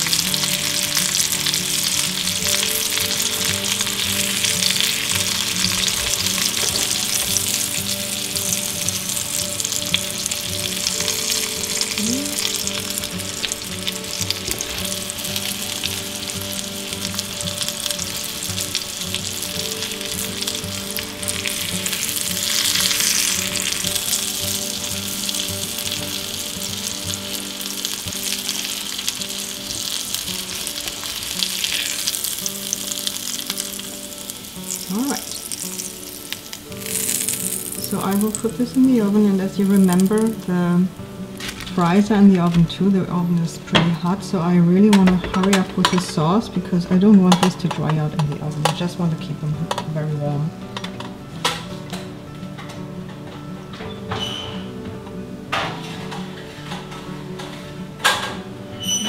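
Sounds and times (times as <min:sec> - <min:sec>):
schnitzel sizzling in oil: 0:00.0 - 0:44.5.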